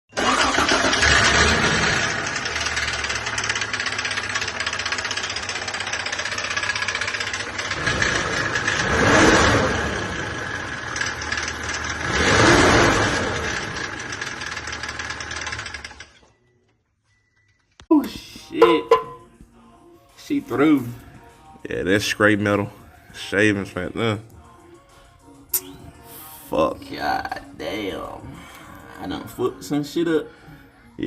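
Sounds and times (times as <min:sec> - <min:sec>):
engine revving: 0:00.1 - 0:16.1
engine running with rhythmic knock: 0:01.1 - 0:16.3.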